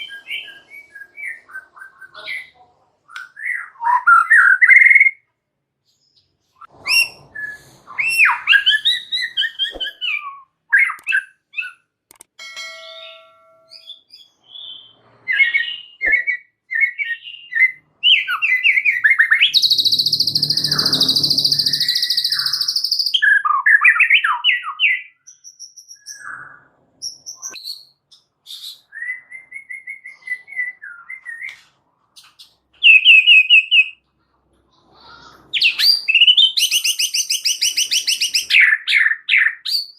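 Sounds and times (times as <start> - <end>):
bird whistling song: 0.0 - 2.4, 3.1 - 5.2, 6.0 - 11.9, 13.0 - 31.6, 32.2 - 34.0, 35.6 - 39.9
bird harsh buzzing chatter: 19.5 - 23.1.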